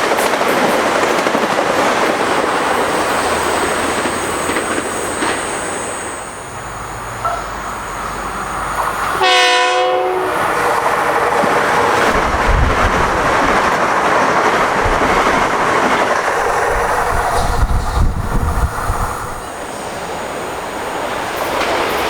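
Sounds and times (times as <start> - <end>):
train wheels rushing on rails: 0.0 - 22.0
train horn: 3.3 - 12.6.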